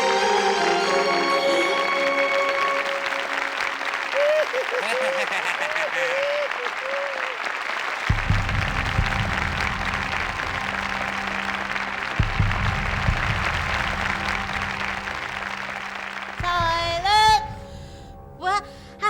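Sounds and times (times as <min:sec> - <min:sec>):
audience applauding: 0:00.0 - 0:17.3
music with low bass line: 0:08.1 - 0:15.8.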